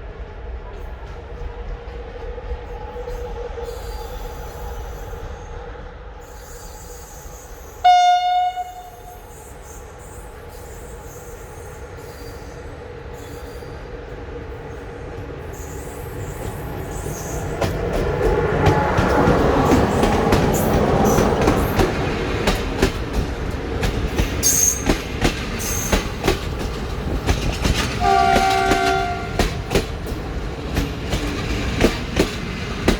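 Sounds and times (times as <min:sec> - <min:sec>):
train rumble and wheel noise: 0:00.0 - 0:32.9
train horn blast: 0:07.8 - 0:09.3, 0:28.0 - 0:29.7.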